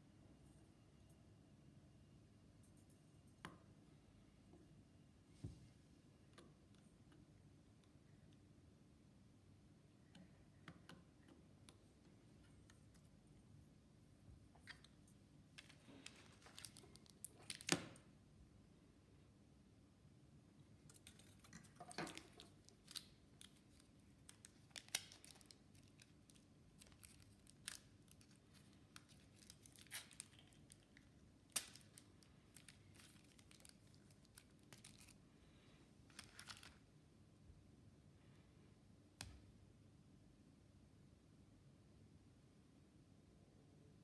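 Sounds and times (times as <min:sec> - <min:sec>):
small objects clicking and rustling: 0:20.9 - 0:35.2, 0:36.1 - 0:36.8.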